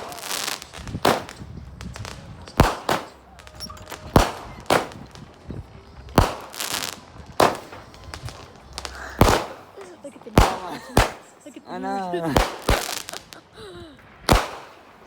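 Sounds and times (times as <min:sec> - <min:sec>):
fireworks bangs: 0:00.0 - 0:15.0
fireworks crackle: 0:00.0 - 0:15.0.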